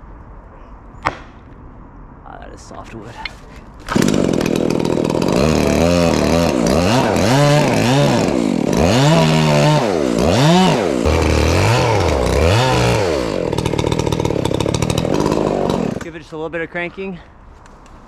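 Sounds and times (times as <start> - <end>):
chainsaw cutting wood: 3.8 - 16.2.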